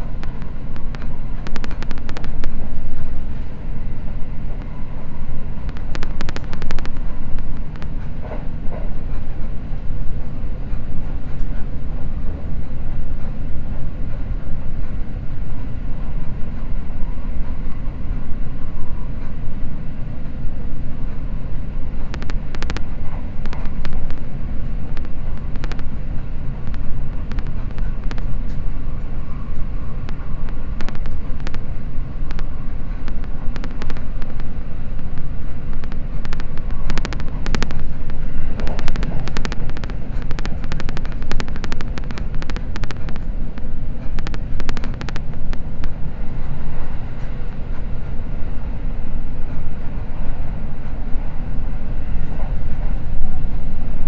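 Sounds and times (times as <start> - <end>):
sharp clicks and ticks: 0.0 - 3.3, 5.6 - 9.5, 22.0 - 28.8, 29.4 - 47.6
train low rumble inside cabin: 0.0 - 54.0.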